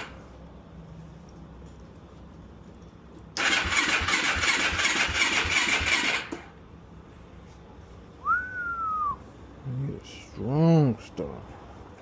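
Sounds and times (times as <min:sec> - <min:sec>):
engine cranking on starter: 0:03.3 - 0:06.6.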